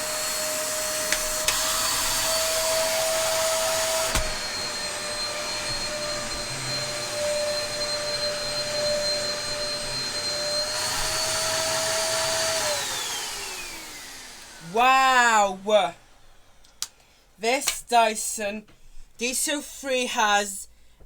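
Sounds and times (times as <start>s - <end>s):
vacuum cleaner motor whine: 0.0s - 15.4s.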